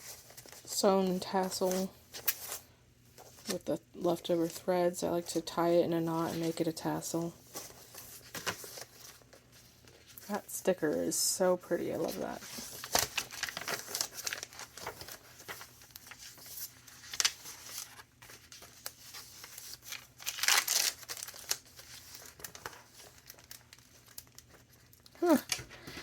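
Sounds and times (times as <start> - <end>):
paper pages rustling and crinkling: 0.0 - 3.6, 6.1 - 10.4, 11.7 - 26.0
page flips: 7.5 - 10.2, 12.0 - 26.0.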